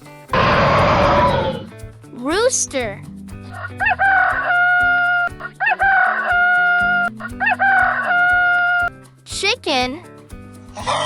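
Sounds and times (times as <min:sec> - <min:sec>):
music with steady beat: 0:00.0 - 0:11.0
rooster crowing: 0:00.4 - 0:01.7, 0:03.6 - 0:08.7.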